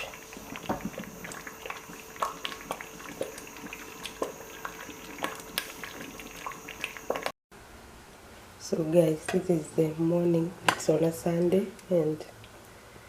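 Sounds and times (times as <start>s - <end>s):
thick puree bubbling in a pot: 0.0s - 7.4s.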